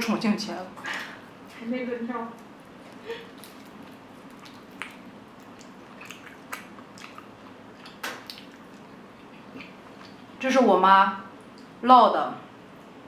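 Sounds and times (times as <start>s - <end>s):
soft wet chewing: 2.6s - 10.3s.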